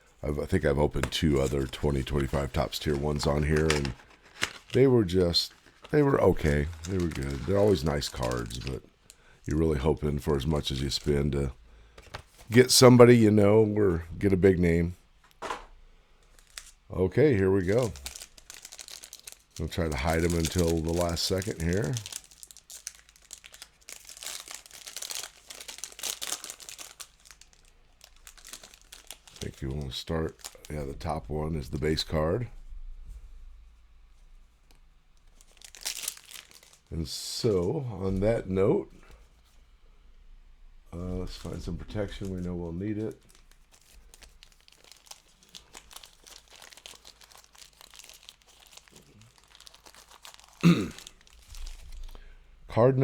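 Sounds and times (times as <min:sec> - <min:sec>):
plastic packaging crinkling: 0:00.4 - 0:11.2, 0:16.2 - 0:32.0, 0:34.7 - 0:37.6, 0:41.2 - 0:52.4.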